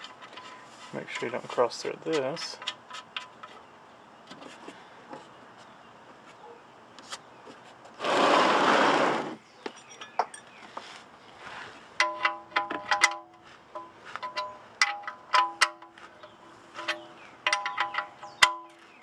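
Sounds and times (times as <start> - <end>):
metallic clicks and scrapes: 0.0 - 3.7, 12.0 - 19.0.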